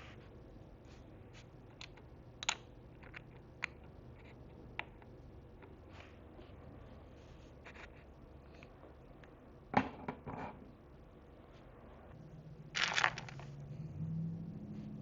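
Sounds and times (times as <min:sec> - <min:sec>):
small pieces clicking: 0:12.8 - 0:13.6.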